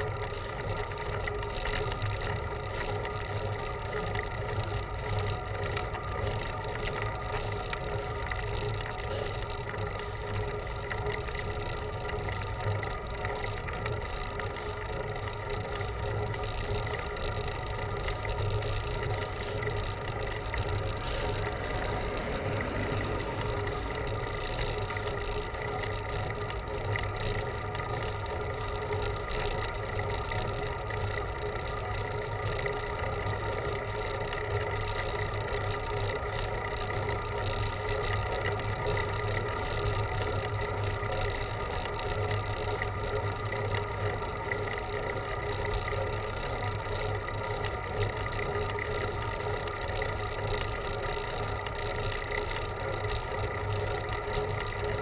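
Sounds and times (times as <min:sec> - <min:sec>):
bicycle road noise: 0:00.0 - 0:55.0
low hum: 0:18.2 - 0:26.8
wind noise: 0:20.7 - 0:25.2.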